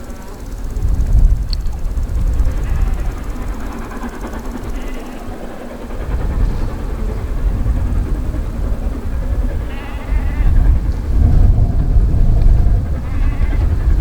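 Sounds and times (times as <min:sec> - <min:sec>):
train running past rumbling: 0:00.0 - 0:14.0.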